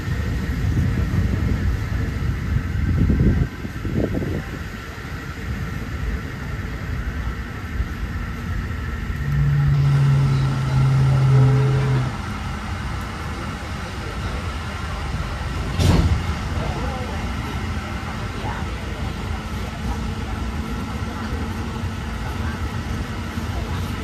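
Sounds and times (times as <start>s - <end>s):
train track and wind noise: 0.0s - 24.0s
low steady tone: 8.9s - 12.8s.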